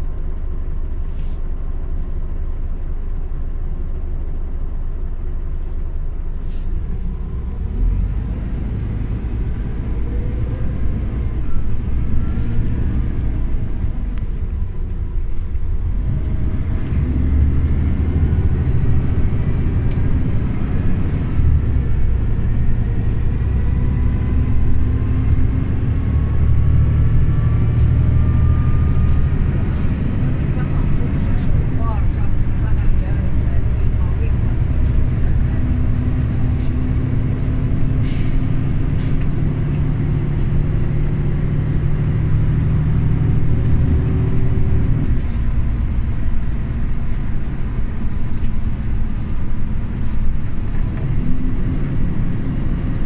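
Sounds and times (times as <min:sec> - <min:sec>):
bus engine running: 0:00.0 - 0:53.0.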